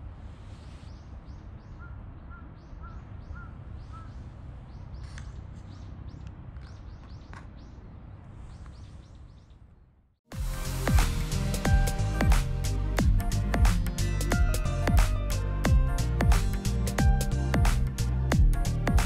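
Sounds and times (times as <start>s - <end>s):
low rumble of city background: 0.0s - 19.0s
birds chirping: 0.7s - 9.9s.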